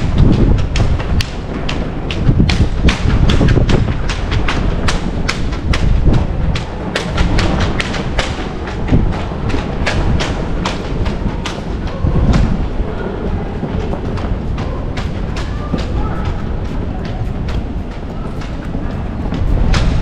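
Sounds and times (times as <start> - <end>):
low rumble: 0.0 - 20.0
footsteps walking: 5.4 - 20.0.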